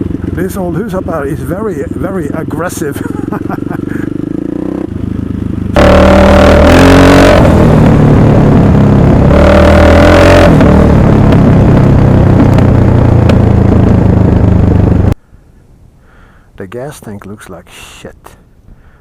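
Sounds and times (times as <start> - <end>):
motorcycle engine revving: 0.0 - 15.2.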